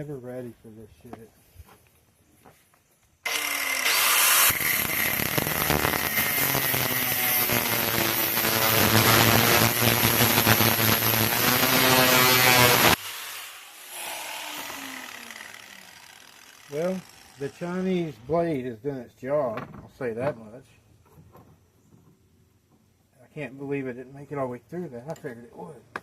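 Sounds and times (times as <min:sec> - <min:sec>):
angle grinder cutting metal: 0:03.3 - 0:18.3.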